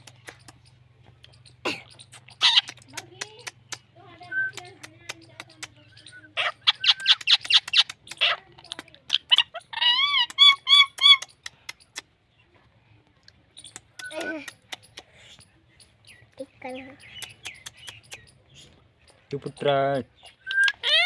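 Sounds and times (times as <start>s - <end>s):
parrot chattering and clicking: 0.0s - 12.3s, 13.1s - 21.0s.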